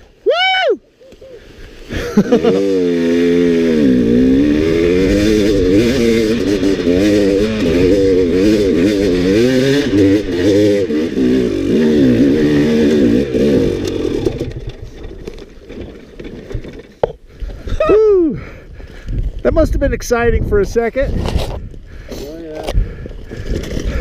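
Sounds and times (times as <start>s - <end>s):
dirt bike engine revving: 1.9s - 16.9s.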